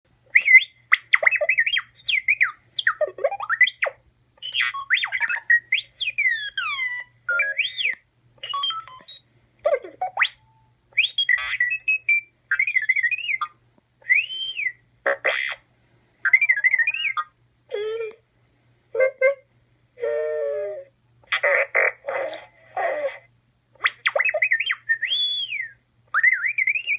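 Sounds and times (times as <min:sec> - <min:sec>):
robot beeps and whistles: 0:00.4 - 0:09.2, 0:10.0 - 0:13.5, 0:21.3 - 0:26.9.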